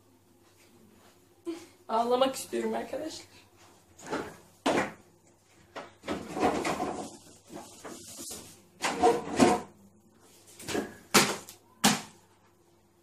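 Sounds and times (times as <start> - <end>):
kitchen items knocking and rubbing: 5.6 - 9.8.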